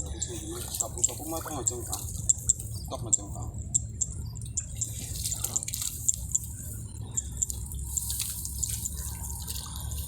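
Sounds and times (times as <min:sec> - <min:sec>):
low hum: 0:00.0 - 0:10.0
water dripping and splashing: 0:04.5 - 0:06.4, 0:07.4 - 0:10.0.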